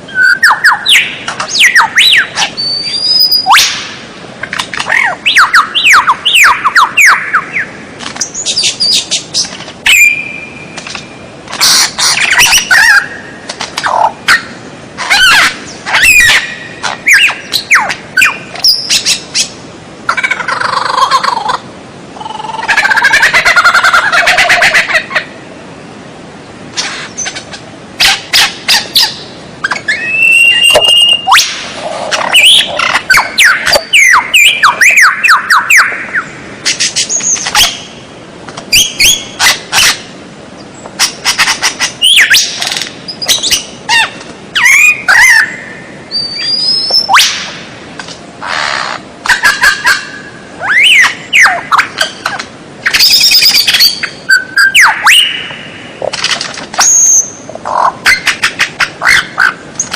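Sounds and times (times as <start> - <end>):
bird singing whistles and chatter: 0.1 - 3.8, 9.9 - 10.7, 28.4 - 31.5, 46.1 - 47.4.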